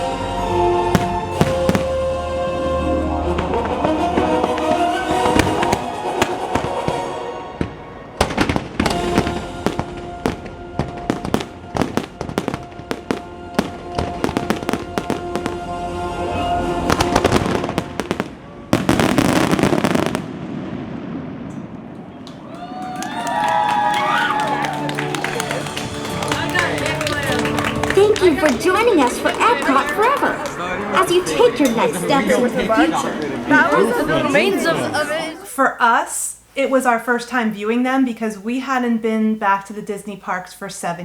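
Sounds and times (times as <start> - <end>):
show music: 0.0 - 18.4, 23.1 - 35.6
fireworks bangs: 0.9 - 2.3, 3.4 - 35.1
fireworks crackling: 0.9 - 2.3, 3.4 - 16.0, 16.6 - 22.5, 23.1 - 35.5.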